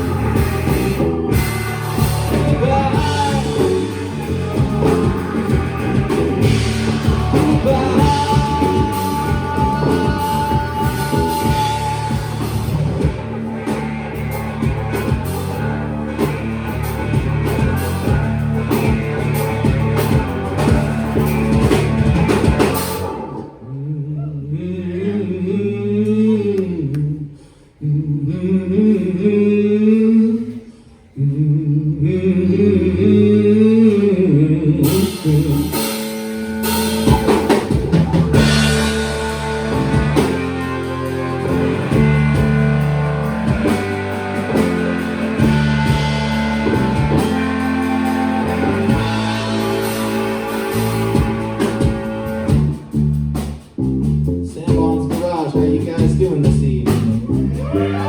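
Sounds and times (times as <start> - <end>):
live rock band playing: 0.0 - 23.6, 34.8 - 58.0
bending sliding low notes: 0.0 - 24.0, 32.7 - 54.9.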